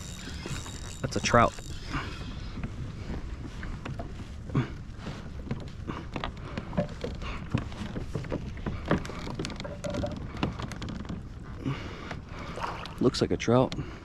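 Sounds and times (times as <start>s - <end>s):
fishing reel reeling: 0.0s - 2.7s
knocks and clicks of kayak tackle: 0.4s - 13.0s.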